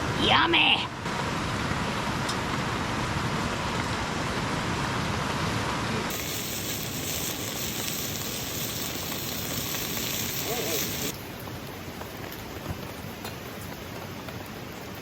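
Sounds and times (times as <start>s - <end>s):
heavy rain hissing: 0.0s - 15.0s
bacon sizzling in a pan: 6.1s - 11.1s.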